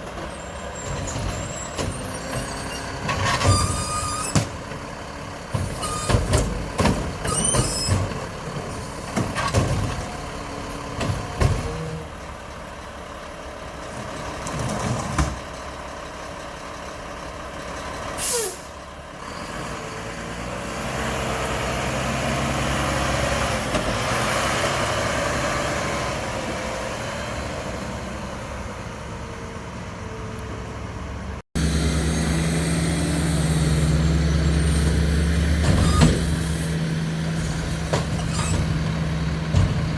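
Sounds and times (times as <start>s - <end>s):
garbage truck clanks and bangs: 0.0s - 12.5s, 13.7s - 15.8s, 34.9s - 39.9s
truck engine humming: 0.0s - 14.7s, 15.4s - 39.9s
air brake hiss: 18.2s - 18.8s
truck engine revving: 19.2s - 30.8s, 31.6s - 39.9s.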